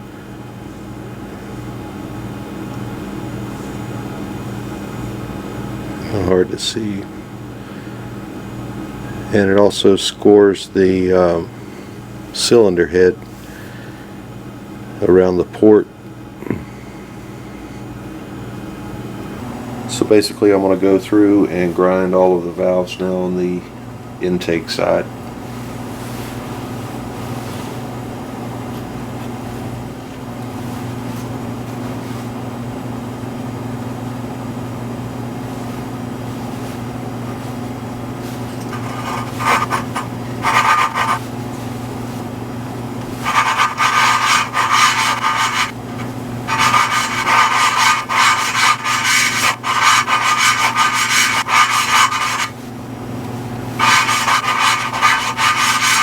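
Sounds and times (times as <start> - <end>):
steady low hum: 35.4 - 56.0
valve lapping gritty rubbing: 38.6 - 41.2, 43.2 - 52.5, 53.8 - 56.0.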